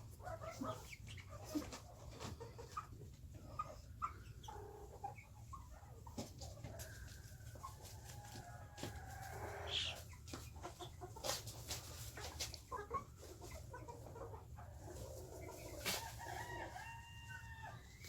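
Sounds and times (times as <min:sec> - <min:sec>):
chickens clucking and calling: 0:00.0 - 0:18.0
long drawn-out chicken call: 0:08.0 - 0:10.0, 0:16.0 - 0:18.0.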